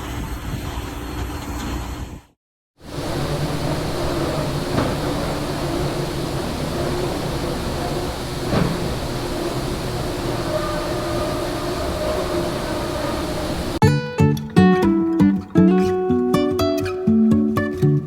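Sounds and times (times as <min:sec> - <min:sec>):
machinery humming: 0:02.8 - 0:13.8
faint knocks: 0:02.9 - 0:13.8.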